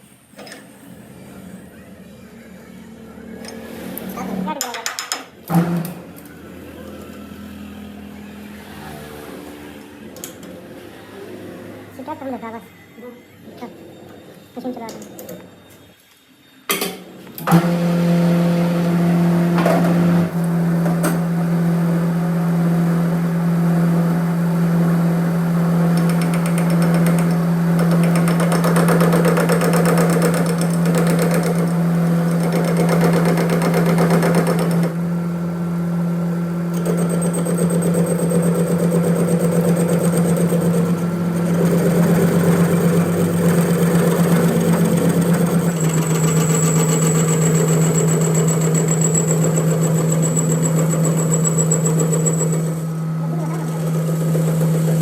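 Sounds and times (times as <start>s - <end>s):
workshop machine humming: 0.0s - 55.0s.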